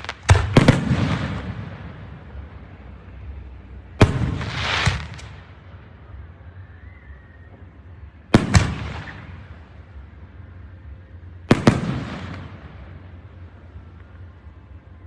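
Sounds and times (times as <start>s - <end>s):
fireworks bangs: 0.0s - 2.8s, 3.9s - 5.7s, 7.4s - 10.0s, 11.4s - 13.5s
fireworks hissing crackle: 0.0s - 15.0s.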